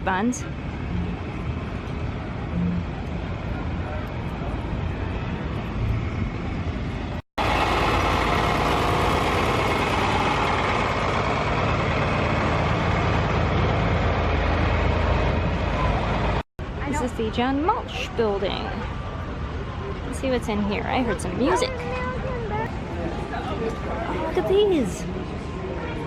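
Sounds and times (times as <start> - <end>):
outdoor background noise: 0.0 - 26.0
large engine running: 0.5 - 16.4.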